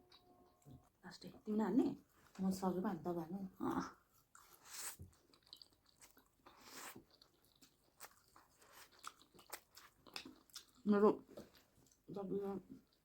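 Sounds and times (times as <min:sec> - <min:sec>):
close-up chewing: 0:04.1 - 0:13.0.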